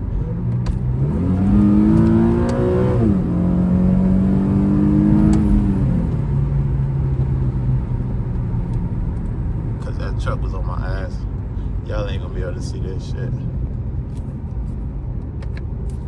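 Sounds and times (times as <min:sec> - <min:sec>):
car engine accelerating: 0:00.1 - 0:10.1.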